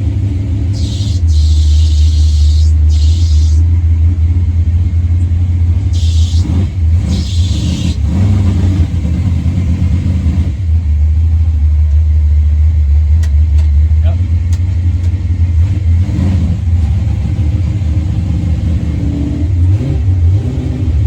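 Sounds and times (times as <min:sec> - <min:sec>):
truck engine rumbling: 0:00.0 - 0:21.0
short hisses: 0:00.7 - 0:03.6, 0:05.9 - 0:08.0.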